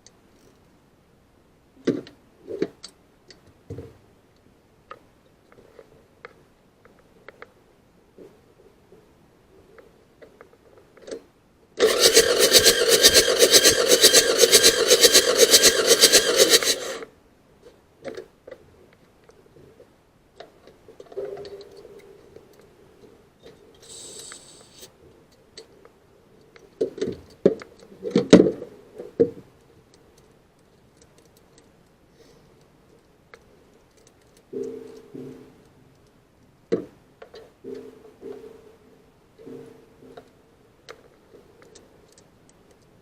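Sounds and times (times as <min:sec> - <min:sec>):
diesel engine turning over: 0:11.8 - 0:17.0
tools clicking and knocking: 0:11.8 - 0:17.0
short hiss: 0:23.8 - 0:24.9.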